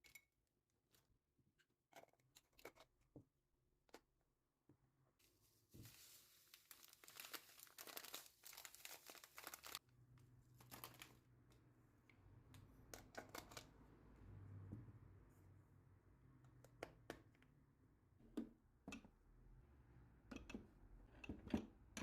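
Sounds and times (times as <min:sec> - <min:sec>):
packaging crinkling: 0:05.8 - 0:09.8, 0:10.6 - 0:11.2
packaging tearing: 0:06.5 - 0:09.8.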